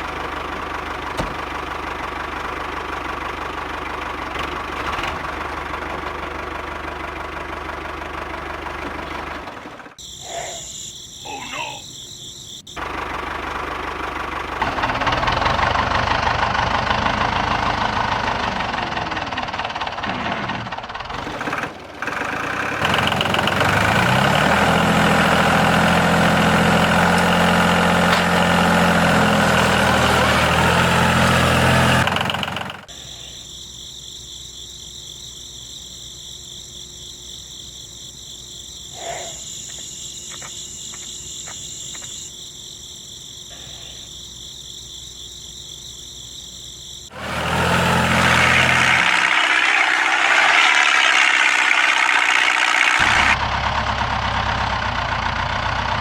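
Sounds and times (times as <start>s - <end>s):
crickets chirping: 10.0s - 15.6s, 32.8s - 47.2s.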